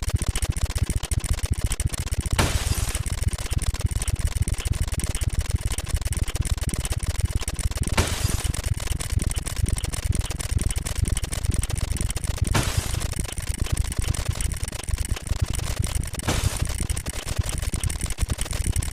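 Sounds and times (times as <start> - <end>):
rapid counter ticking: 0.0 - 18.9
glass breaking crash: 2.4 - 3.1, 8.0 - 8.6.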